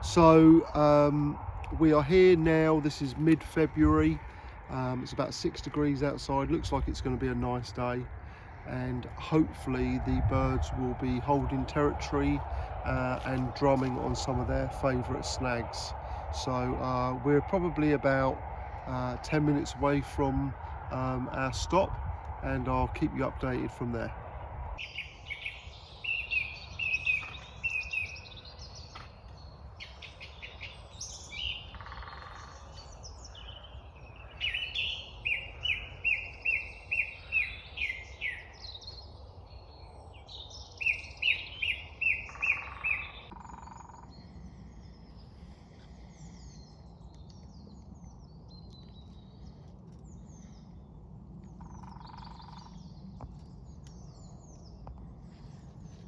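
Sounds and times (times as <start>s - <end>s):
low steady rumble: 0.0s - 24.9s
small birds chirping: 0.0s - 56.0s
bird ringing call: 40.8s - 44.2s, 51.6s - 52.8s.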